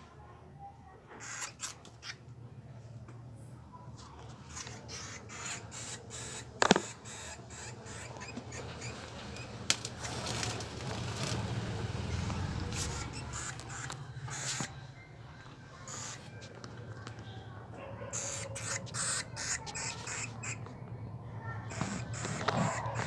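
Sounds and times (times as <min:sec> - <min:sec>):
rat squeaking: 0:01.2 - 0:02.2, 0:04.3 - 0:17.4, 0:18.0 - 0:23.0
scratchy clicks and rustles: 0:04.0 - 0:14.8, 0:21.6 - 0:23.0.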